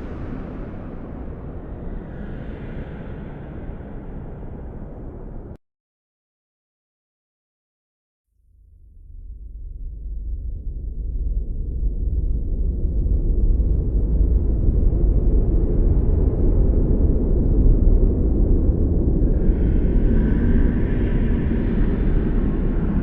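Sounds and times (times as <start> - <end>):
blizzard wind rumbling: 0.0 - 5.6, 9.2 - 23.0
whistling wind gust: 0.0 - 5.6, 14.5 - 23.0.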